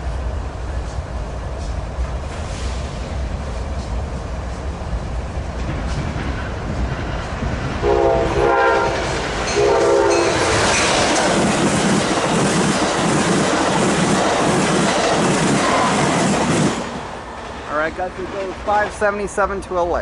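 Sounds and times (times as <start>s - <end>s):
train running noise: 0.0s - 20.0s
train horn blasts: 7.8s - 10.6s
wheels clacking over rail joints: 8.8s - 19.5s.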